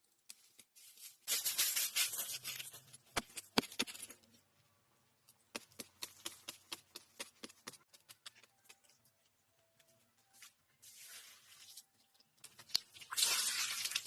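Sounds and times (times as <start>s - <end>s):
rustling handling noise: 0.0s - 4.4s.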